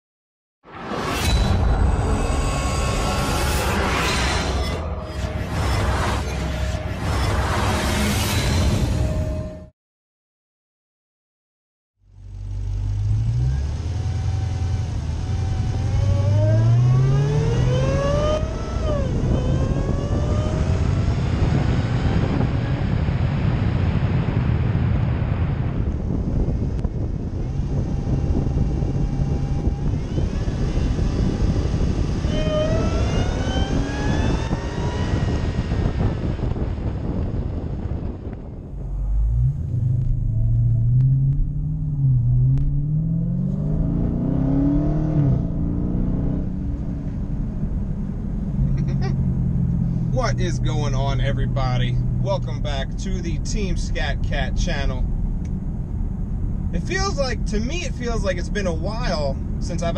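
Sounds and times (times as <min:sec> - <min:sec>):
car engine accelerating hard: 0:12.2 - 0:59.9.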